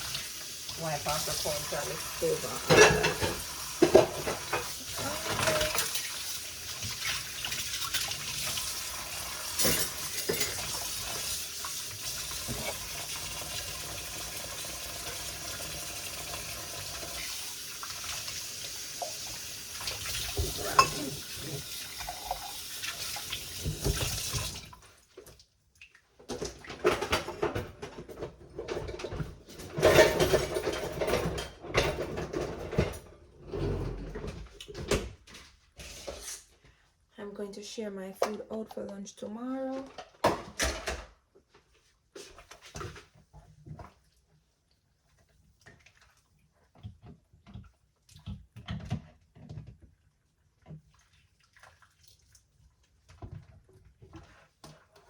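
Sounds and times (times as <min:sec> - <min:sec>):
kitchen tap running into sink: 0:00.0 - 0:25.4
kitchenware clattering: 0:01.0 - 0:08.4, 0:09.5 - 0:11.4, 0:19.8 - 0:22.6, 0:26.3 - 0:35.0
dishes and utensils knocking: 0:02.5 - 0:06.1, 0:20.4 - 0:21.3.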